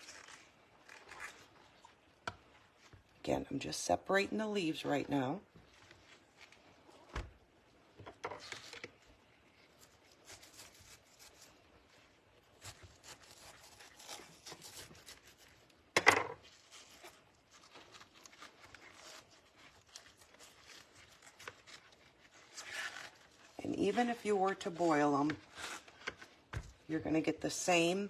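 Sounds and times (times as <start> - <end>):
cabbage leaves rustling and tearing: 0.0 - 3.0, 8.4 - 15.8, 16.4 - 26.9.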